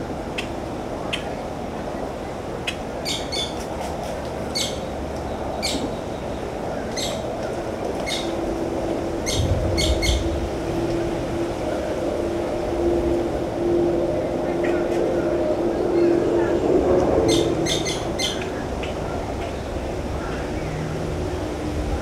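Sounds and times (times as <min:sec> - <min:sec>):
low steady hum: 0:08.3 - 0:22.0
birds chirping: 0:09.2 - 0:10.5.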